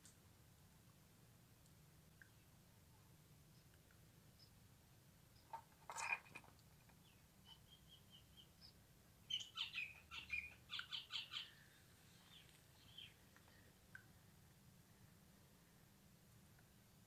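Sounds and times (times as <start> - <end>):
bird calling and chirping: 7.0 - 13.2.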